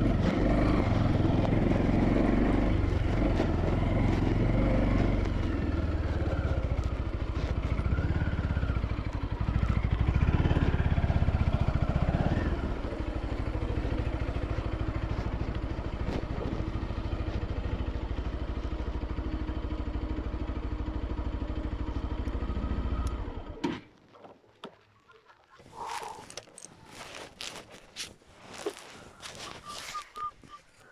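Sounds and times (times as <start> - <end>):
motorcycle engine running: 0.0 - 23.6.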